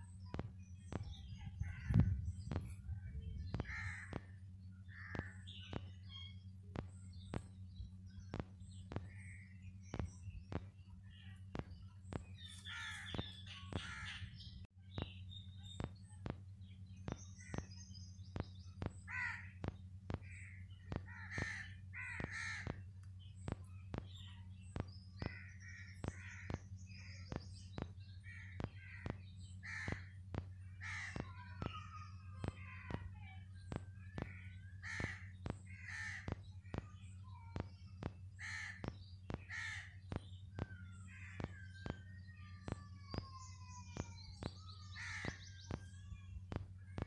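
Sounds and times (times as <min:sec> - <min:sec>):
birds calling and chirping: 0:00.0 - 0:47.0
steady low hum: 0:00.0 - 0:47.0
evenly spaced sharp clicks: 0:08.3 - 0:14.0, 0:17.0 - 0:31.8, 0:32.4 - 0:44.6.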